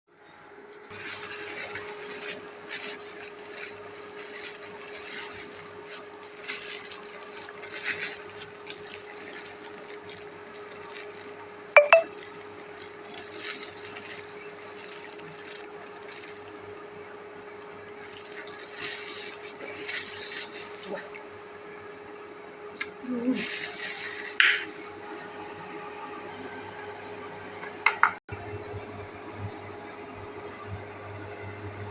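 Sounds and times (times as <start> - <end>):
plastic bag rustling: 0.9 - 21.0, 23.3 - 24.8.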